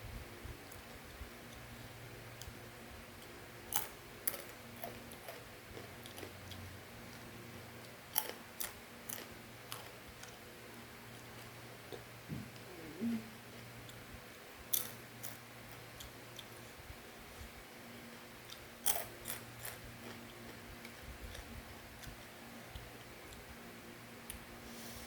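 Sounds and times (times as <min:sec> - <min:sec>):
faint steady hum: 0:00.0 - 0:25.0
crunchy snack being chewed: 0:03.7 - 0:10.4, 0:14.7 - 0:16.6, 0:18.4 - 0:23.4.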